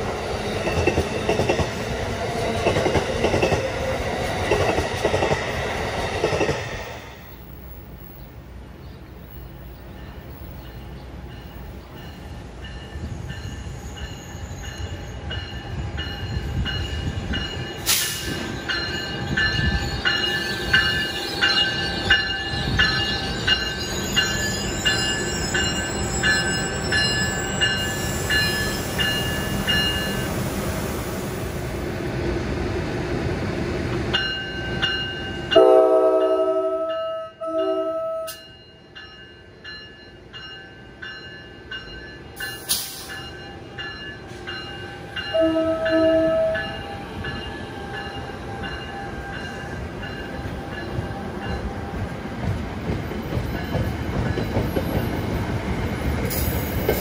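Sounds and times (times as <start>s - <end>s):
passenger train rumble: 0.0s - 57.0s
train horn blasts: 35.5s - 38.4s, 45.3s - 46.9s.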